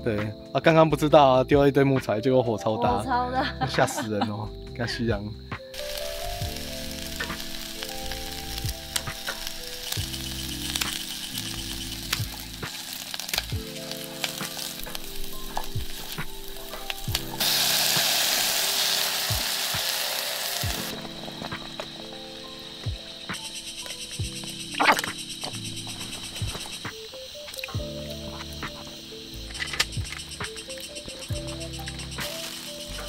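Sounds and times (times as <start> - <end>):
soft background music: 0.0 - 33.0
loud steady hiss: 5.3 - 33.0
cooking crackling and sizzling: 5.6 - 33.0.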